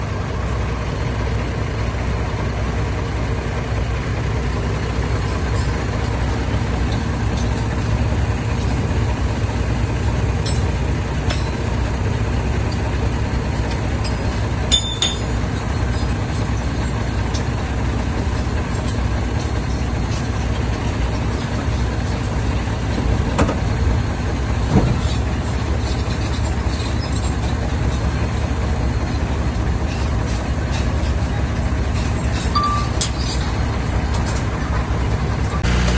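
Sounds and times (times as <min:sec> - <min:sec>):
diesel machinery rumbling: 0:00.0 - 0:35.9
metal clanks: 0:05.2 - 0:09.6, 0:10.2 - 0:12.0, 0:12.6 - 0:23.8, 0:24.6 - 0:35.9.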